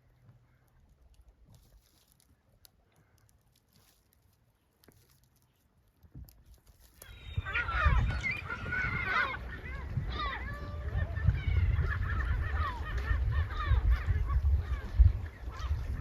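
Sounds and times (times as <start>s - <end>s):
flock of birds calling: 7.0s - 16.0s.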